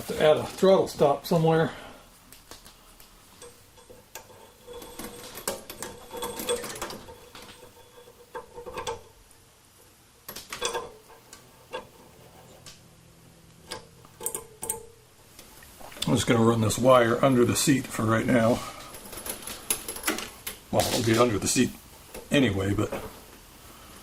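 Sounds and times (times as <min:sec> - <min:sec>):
clicks and rattles of tools: 0:02.5 - 0:09.1, 0:18.8 - 0:21.4.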